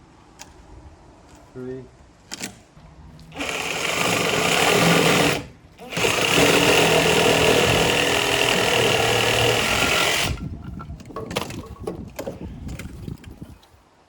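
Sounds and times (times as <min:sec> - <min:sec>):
power saw cutting timber: 0:03.2 - 0:10.5
wood being handled: 0:03.2 - 0:13.8.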